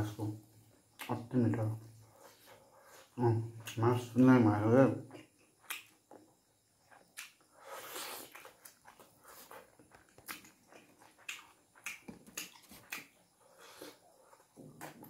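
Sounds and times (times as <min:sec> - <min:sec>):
wet chewing smacks: 0:06.9 - 0:15.0.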